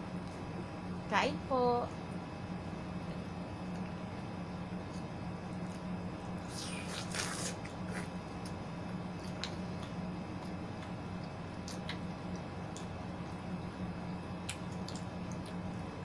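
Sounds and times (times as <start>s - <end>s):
wet chewing of melon: 3.6s - 13.8s, 14.4s - 16.0s
juicy bite or slurp: 6.4s - 8.1s.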